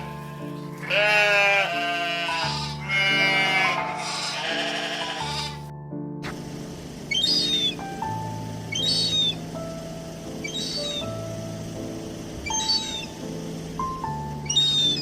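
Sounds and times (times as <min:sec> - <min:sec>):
farm animal bleating: 0:00.0 - 0:05.7
background music: 0:00.0 - 0:15.0.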